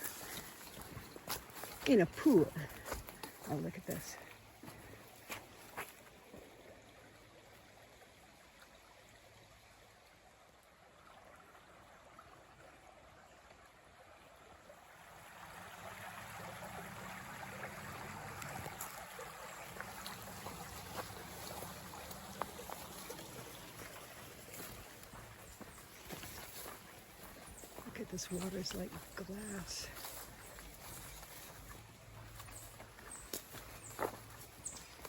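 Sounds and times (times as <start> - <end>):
river water rushing: 14.5 - 35.0.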